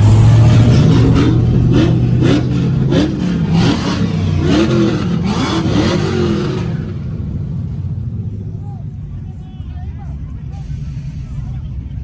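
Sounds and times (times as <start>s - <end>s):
sharp exhaust cracks: 0.0s - 7.9s
truck engine revving: 0.0s - 9.1s.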